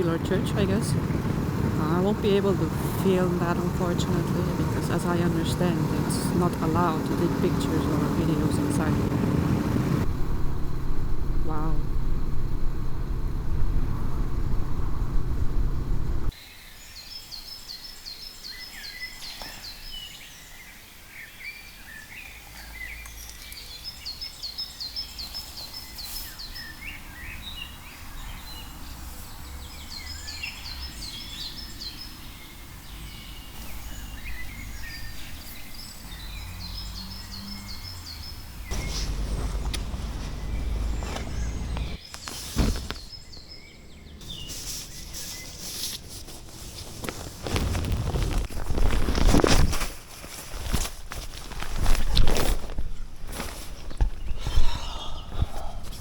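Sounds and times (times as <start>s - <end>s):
motorcycle rumble: 0.0s - 16.3s, 28.2s - 44.4s
bird chirps: 16.4s - 42.3s.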